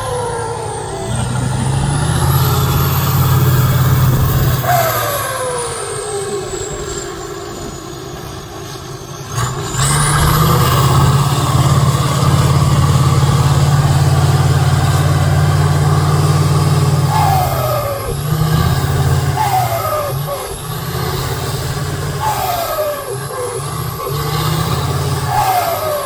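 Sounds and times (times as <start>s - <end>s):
truck engine revving: 0.0s - 26.0s.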